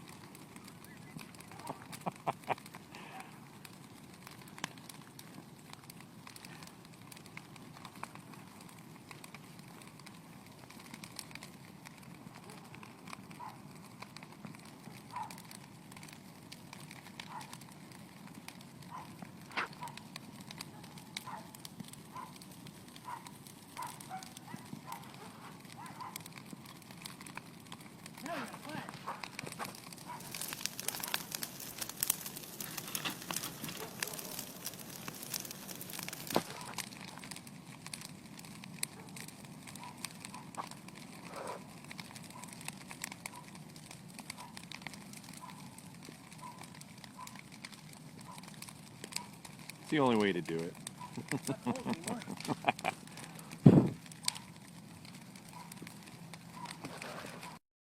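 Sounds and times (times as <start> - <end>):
bonfire crackling and popping: 0.0 - 57.6
low rush of fire: 0.0 - 57.6.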